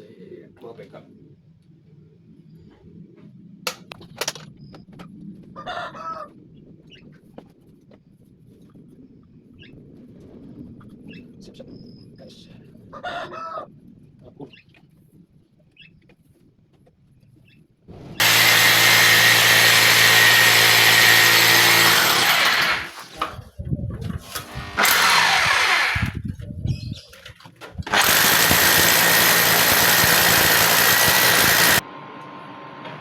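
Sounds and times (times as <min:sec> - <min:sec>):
electric power drill running: 0:18.2 - 0:23.2, 0:24.4 - 0:26.2, 0:27.8 - 0:31.8.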